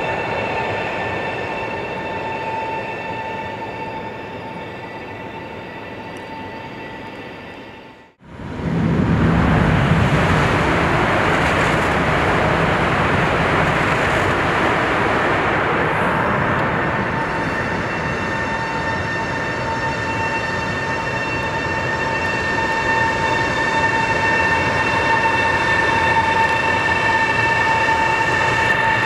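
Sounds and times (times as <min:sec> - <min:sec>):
high-speed train whine: 0:00.0 - 0:29.0
rushing noise: 0:08.2 - 0:29.0.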